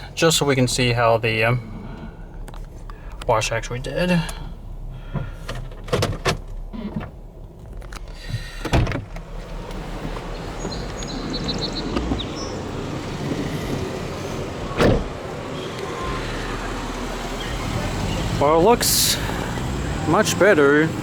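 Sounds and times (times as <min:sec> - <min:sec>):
outdoor traffic noise: 0:00.0 - 0:21.0
knocks and clicks in car cabin: 0:05.1 - 0:15.9
loud thump: 0:14.7 - 0:15.2.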